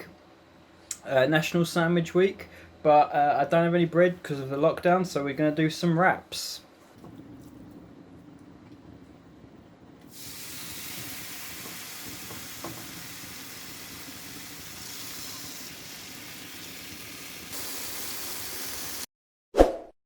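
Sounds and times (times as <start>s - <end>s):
steak sizzling in a frying pan: 10.1s - 19.0s.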